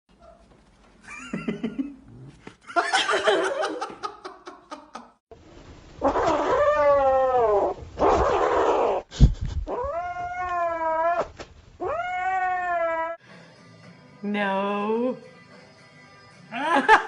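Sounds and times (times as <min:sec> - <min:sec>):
cat meowing: 0:06.0 - 0:09.0, 0:09.7 - 0:13.2.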